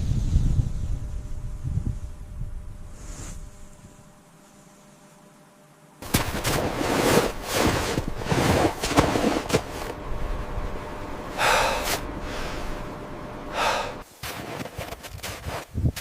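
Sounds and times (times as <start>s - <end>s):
person breathing hard in gasps: 11.4s - 12.7s, 13.5s - 14.0s.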